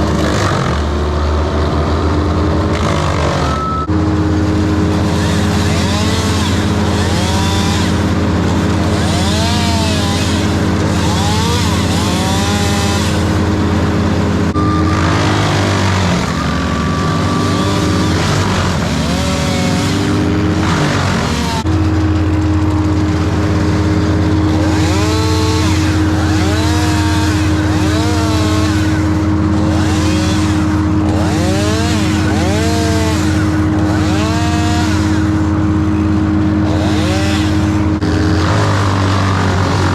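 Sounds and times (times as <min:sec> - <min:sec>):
large engine running: 0:00.0 - 0:39.9
rising and falling whines: 0:02.2 - 0:07.2, 0:12.6 - 0:31.0.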